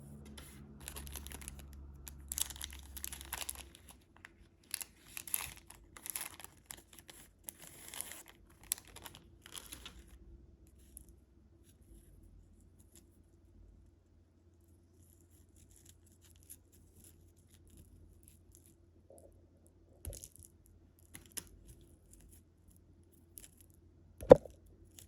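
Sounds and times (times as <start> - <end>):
candy wrapper tearing and crinkling: 0.4 - 10.1.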